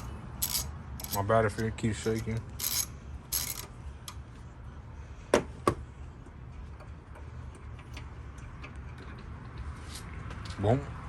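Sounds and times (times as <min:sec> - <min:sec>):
sharp metal clicks of hand tools: 0:00.0 - 0:04.2.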